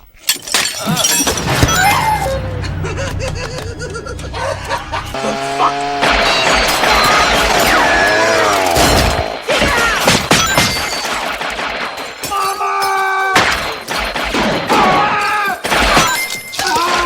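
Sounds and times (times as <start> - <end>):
crashing and shattering impacts: 0.3 - 12.8
horror film music: 0.8 - 13.2
wavering gliding tones: 1.2 - 9.4.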